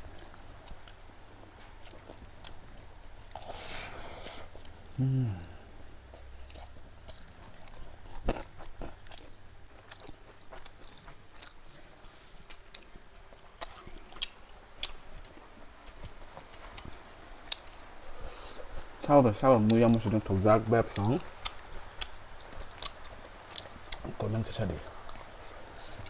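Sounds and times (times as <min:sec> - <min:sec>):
chewing and biting: 0:06.1 - 0:18.7, 0:20.9 - 0:24.2.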